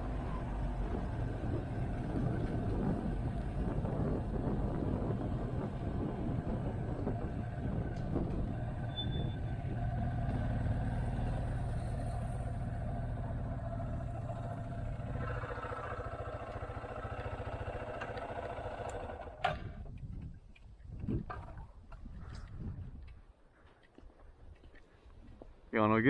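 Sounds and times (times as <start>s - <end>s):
motorcycle engine running: 0.0s - 19.7s.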